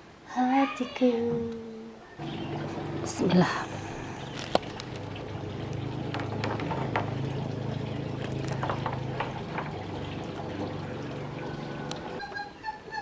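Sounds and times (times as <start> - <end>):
liquid bubbling: 2.2 - 12.2
steady low hum: 2.2 - 12.2
utensils clicking and knocking: 2.2 - 12.2.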